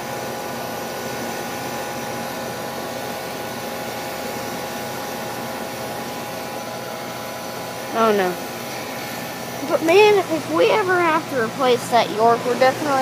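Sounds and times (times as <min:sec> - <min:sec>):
compressor hum: 0:00.0 - 0:13.0
condenser fan air rush: 0:00.0 - 0:13.0
steady tones: 0:07.8 - 0:13.0.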